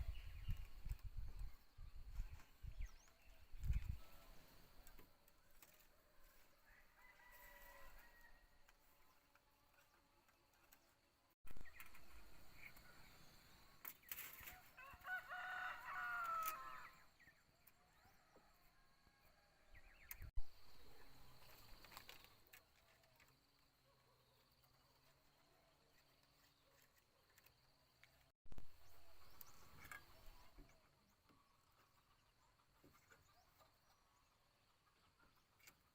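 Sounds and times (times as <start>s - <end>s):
rooster crowing faintly: 5.9s - 8.8s.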